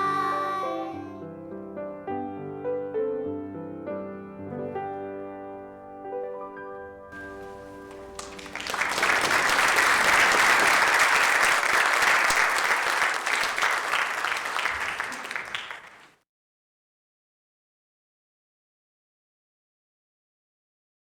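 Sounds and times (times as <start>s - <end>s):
audience applause: 7.2s - 16.2s.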